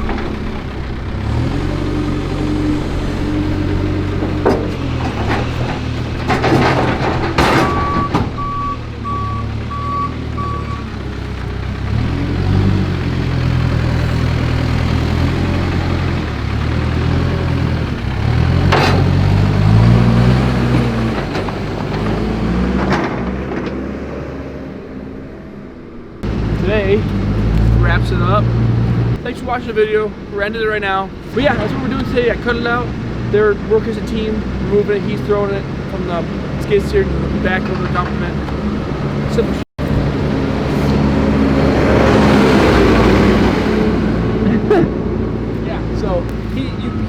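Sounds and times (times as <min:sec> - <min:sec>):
diesel engine revving: 0:00.0 - 0:47.0
backup alarm beeping: 0:07.6 - 0:10.9.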